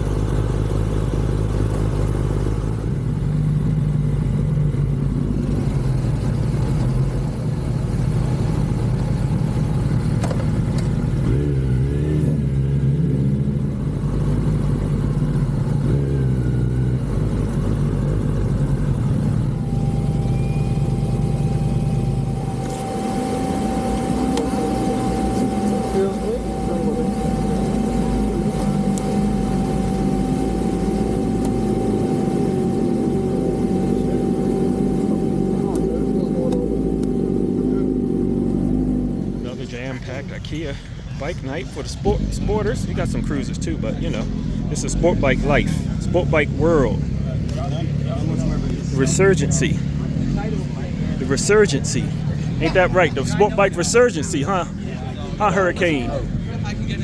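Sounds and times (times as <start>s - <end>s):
motorcycle engines idling: 0.0s - 57.0s
steady high tone: 19.3s - 39.5s, 41.9s - 50.2s, 50.9s - 57.0s.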